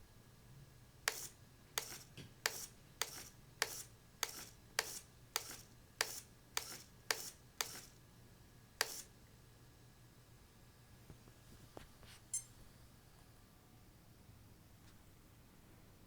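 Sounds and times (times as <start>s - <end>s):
servo clicking and whirring: 1.1s - 8.0s.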